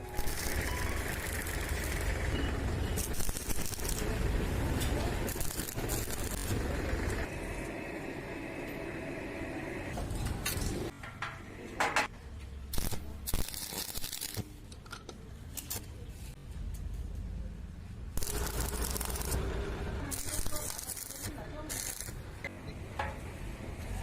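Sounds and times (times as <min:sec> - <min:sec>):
steady machine whine: 0:06.0 - 0:10.0.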